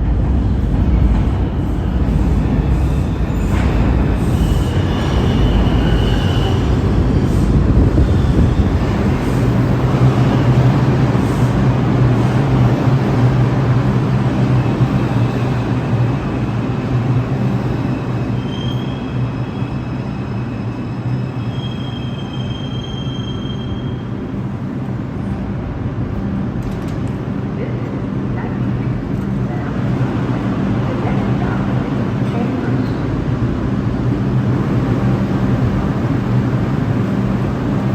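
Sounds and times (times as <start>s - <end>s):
train wheels rumbling on rail: 0.0s - 37.9s
high wheel squeals: 1.7s - 7.0s, 17.9s - 24.2s.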